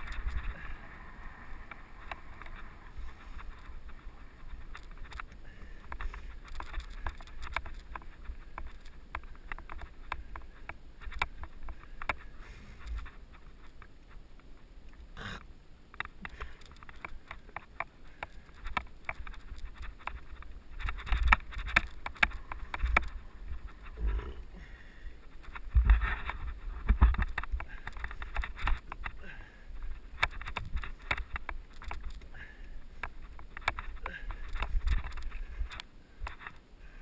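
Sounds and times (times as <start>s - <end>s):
mountain bike rattling: 0.0s - 14.3s, 16.0s - 36.6s
wind rumble on microphone: 25.2s - 29.2s.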